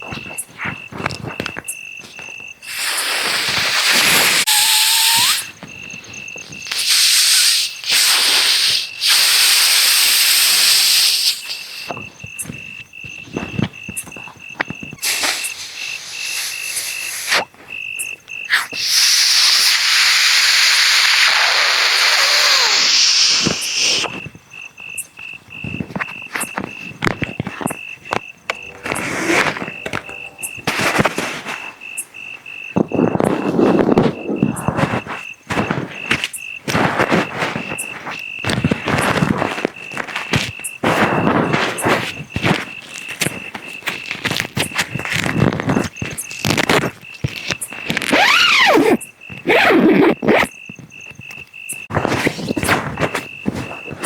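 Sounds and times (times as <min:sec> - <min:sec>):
crickets chirping: 0:00.0 - 0:54.0
loud hissing bursts: 0:02.6 - 0:05.6, 0:06.6 - 0:12.0, 0:15.0 - 0:17.5, 0:18.5 - 0:24.1
crackling clicks: 0:34.6 - 0:52.8.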